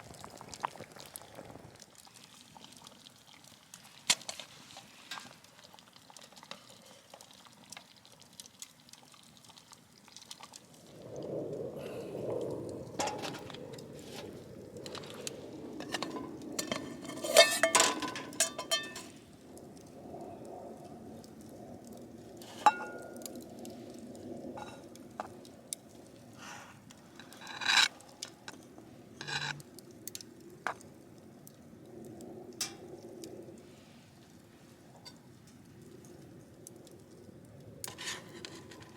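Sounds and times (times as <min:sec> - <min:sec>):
spoon stirring and scraping pot: 0:14.8 - 0:19.1, 0:22.6 - 0:23.0, 0:29.2 - 0:29.6
metal clinks against pot: 0:15.9 - 0:19.1, 0:22.7 - 0:23.0.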